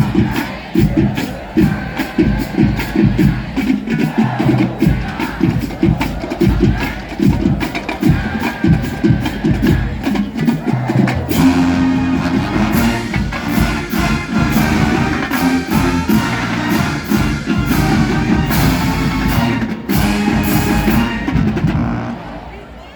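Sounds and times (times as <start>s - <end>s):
marching band drums: 0.0s - 22.4s
brass held chords: 11.3s - 22.8s.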